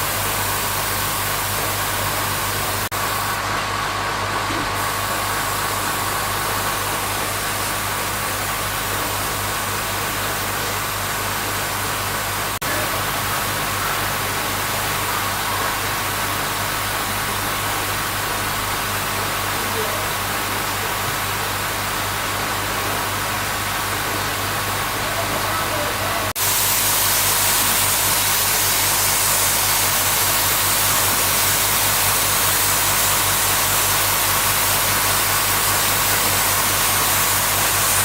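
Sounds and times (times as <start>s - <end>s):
motor humming with hiss: 24.8s - 38.0s.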